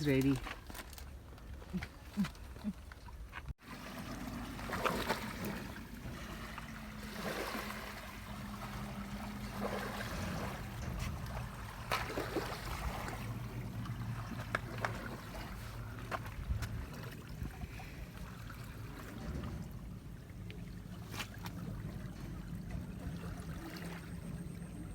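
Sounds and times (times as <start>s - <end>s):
low steady hum: 0.0s - 24.9s
water trickling and gurgling: 0.0s - 24.9s
splashy sweeps: 3.6s - 24.2s.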